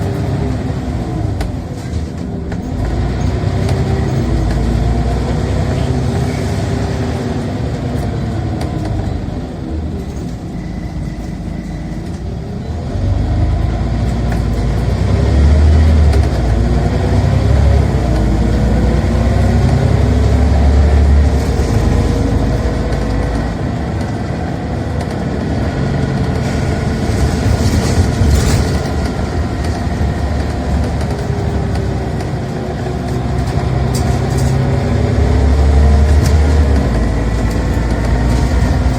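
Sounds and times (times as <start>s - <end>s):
bus engine under load: 0.0s - 38.9s.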